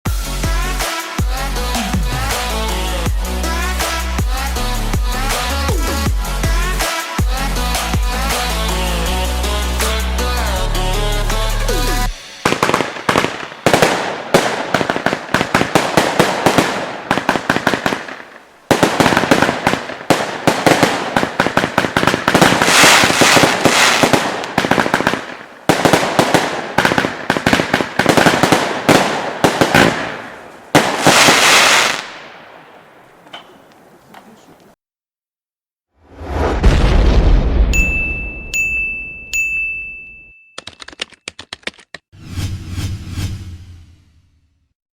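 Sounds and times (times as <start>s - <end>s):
firework crackling: 12.1s - 33.0s.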